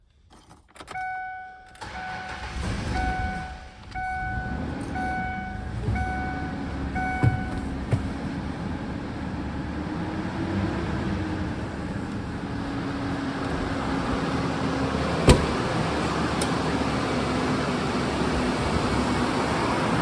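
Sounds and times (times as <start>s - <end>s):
car engine starting and idling: 0.7s - 20.0s
dashboard warning chime: 0.9s - 8.2s.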